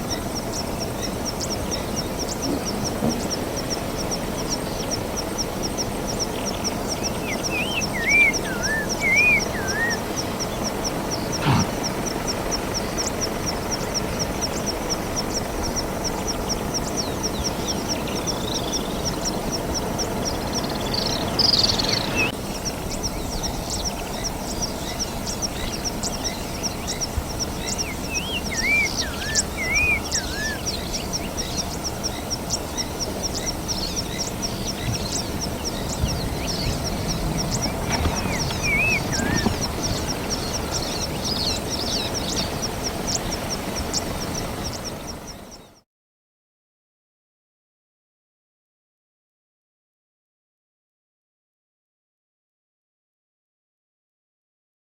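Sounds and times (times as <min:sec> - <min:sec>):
bird whistling: 0:07.6 - 0:10.0, 0:11.4 - 0:11.9, 0:37.5 - 0:42.0
low background rumble: 0:30.6 - 0:45.6.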